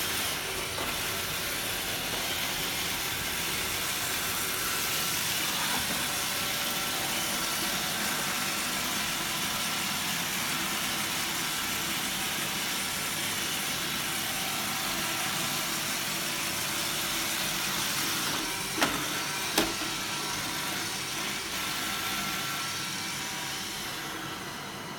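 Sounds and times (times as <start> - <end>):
robot vacuum whirring: 0.0 - 8.4, 17.5 - 24.5.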